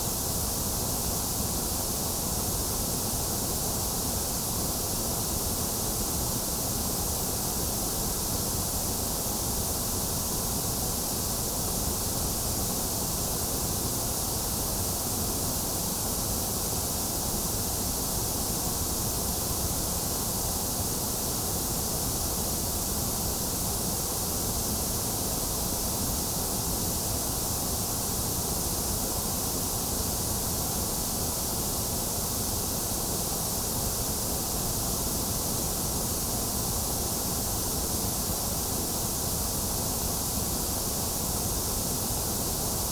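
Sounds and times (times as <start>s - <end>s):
white noise hiss: 0.0s - 42.9s.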